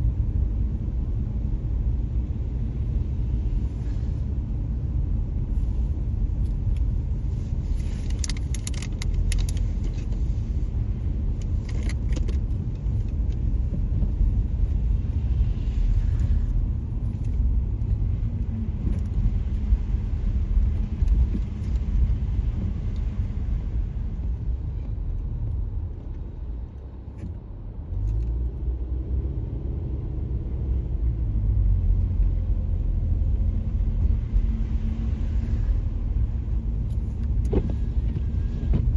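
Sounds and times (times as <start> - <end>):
tyres and engine rumble: 0.0 - 38.9.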